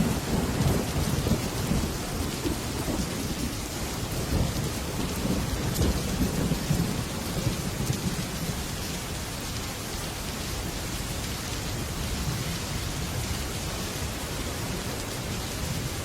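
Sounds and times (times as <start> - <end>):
thunder rumbling: 0.0 - 9.2
heavy rain on a metal roof: 0.0 - 16.0.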